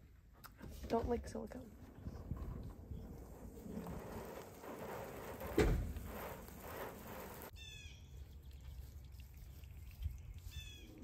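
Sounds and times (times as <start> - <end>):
thump: 5.4 - 6.2
bird chirp: 7.5 - 11.0.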